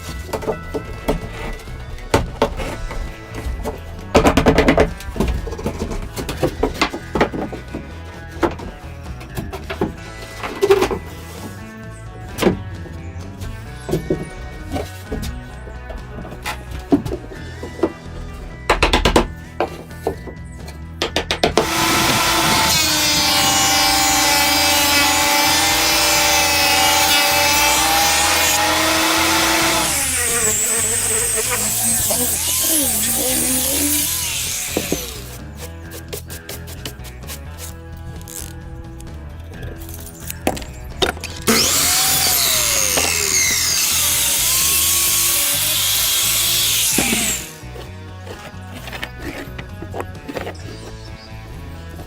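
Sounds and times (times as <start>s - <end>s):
background music: 0.0s - 52.0s
power tool cutting wood: 21.6s - 35.7s, 41.2s - 47.8s.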